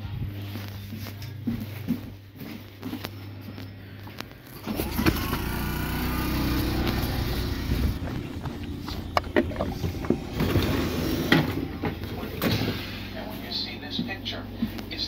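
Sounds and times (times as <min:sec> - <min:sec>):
train motor hum: 0:00.0 - 0:15.0
electric train rumble: 0:04.6 - 0:14.5.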